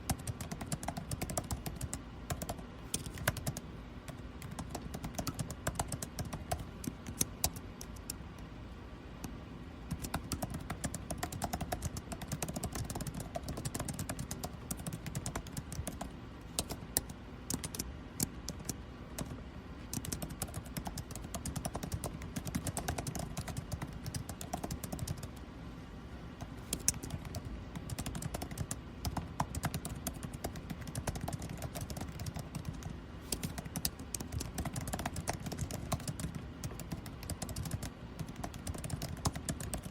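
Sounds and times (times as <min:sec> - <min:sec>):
typing on computer keyboard: 0:00.0 - 0:08.3, 0:09.2 - 0:25.4, 0:26.4 - 0:39.9
air conditioning hum: 0:00.0 - 0:39.9.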